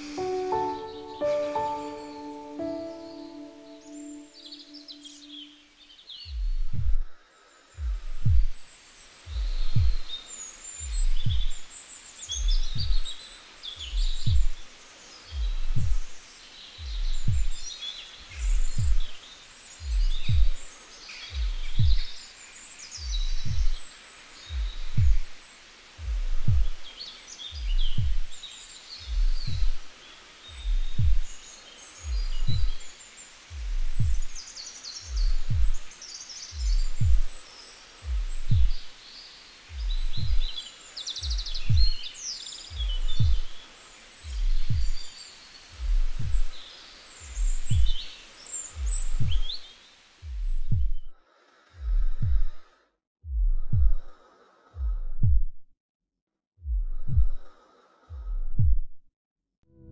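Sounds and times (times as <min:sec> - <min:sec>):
birds chirping faintly: 0:00.0 - 0:52.7
heartbeat double thump: 0:06.3 - 0:07.1, 0:07.8 - 0:08.6, 0:09.3 - 0:10.2, 0:10.8 - 0:11.6, 0:12.4 - 0:13.2, 0:13.8 - 0:14.6, 0:15.3 - 0:16.2, 0:16.8 - 0:17.7, 0:18.4 - 0:19.2, 0:19.8 - 0:20.7, 0:21.3 - 0:22.2, 0:23.0 - 0:23.8, 0:24.5 - 0:25.4, 0:26.0 - 0:26.8, 0:27.5 - 0:28.4, 0:29.0 - 0:29.9, 0:30.5 - 0:31.4, 0:32.0 - 0:32.9, 0:33.5 - 0:34.4, 0:35.1 - 0:35.9, 0:36.5 - 0:37.4, 0:38.0 - 0:38.9, 0:39.7 - 0:40.6, 0:41.2 - 0:42.1, 0:42.7 - 0:43.6, 0:44.2 - 0:45.1, 0:45.8 - 0:46.6, 0:47.2 - 0:48.0, 0:48.8 - 0:49.6, 0:50.2 - 0:51.1, 0:51.8 - 0:52.6, 0:53.2 - 0:54.1, 0:54.8 - 0:55.6, 0:56.6 - 0:57.5, 0:58.1 - 0:59.0.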